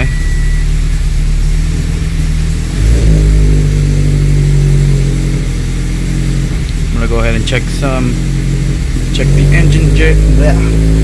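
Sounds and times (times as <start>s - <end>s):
car engine idling unevenly: 0.0s - 11.0s.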